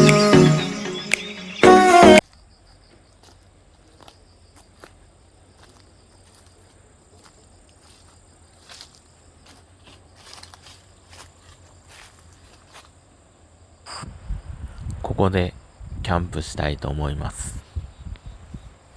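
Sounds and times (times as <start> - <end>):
insects trilling: 2.2 - 16.3.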